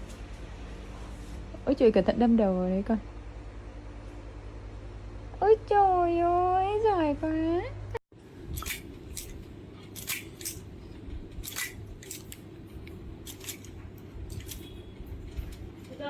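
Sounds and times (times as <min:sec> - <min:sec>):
steady low hum: 0:00.0 - 0:16.0
sharp snipping clicks: 0:10.0 - 0:10.7, 0:11.3 - 0:12.5.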